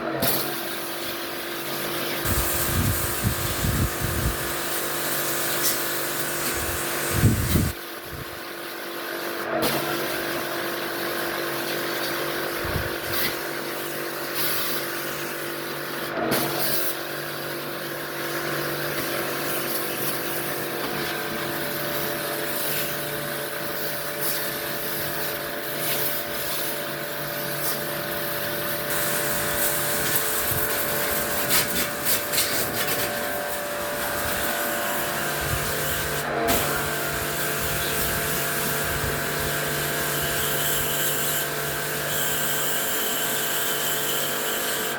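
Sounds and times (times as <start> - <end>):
small electric machine humming: 1.7 - 8.6, 17.7 - 44.9.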